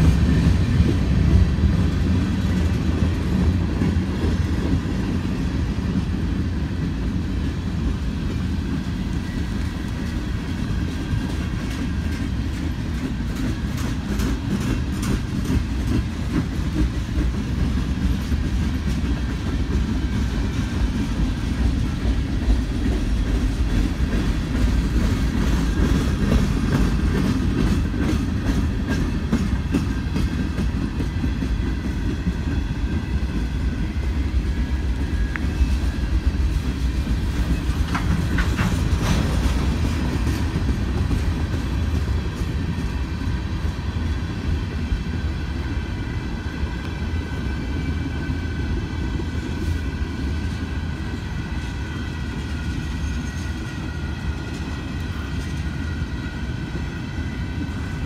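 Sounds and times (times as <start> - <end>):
train wheels rumbling on rail: 0.0 - 58.0
wheels clicking over rail joints: 9.4 - 33.6, 34.4 - 43.0.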